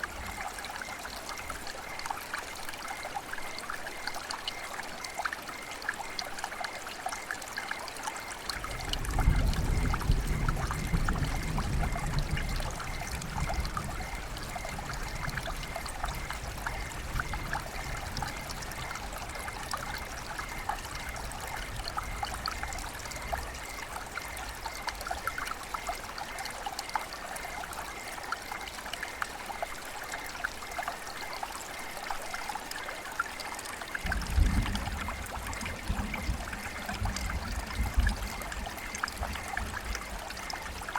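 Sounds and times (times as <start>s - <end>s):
river water babbling: 0.0s - 9.8s, 12.7s - 40.9s.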